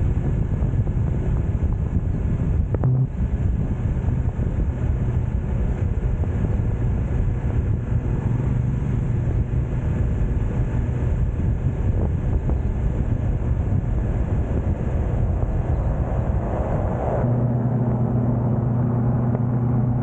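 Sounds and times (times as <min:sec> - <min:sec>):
motorcycle engine running: 0:00.0 - 0:20.0
wind rush on microphone: 0:00.0 - 0:20.0.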